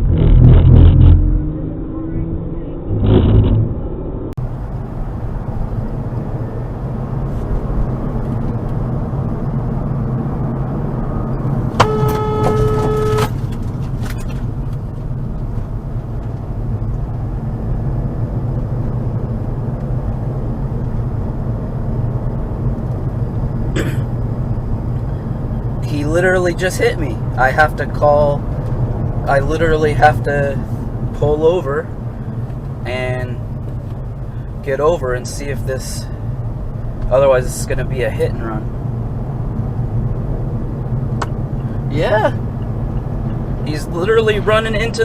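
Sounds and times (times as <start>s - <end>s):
car engine and road hum: 0.0s - 45.0s
car horn: 11.7s - 13.4s.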